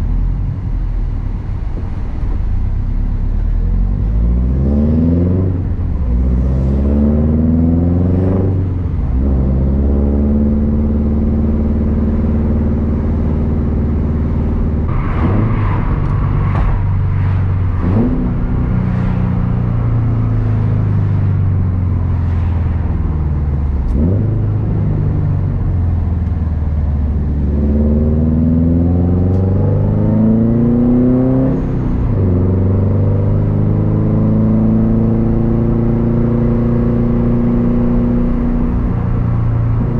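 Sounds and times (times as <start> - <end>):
turbocharged car engine revving: 3.8 - 39.9.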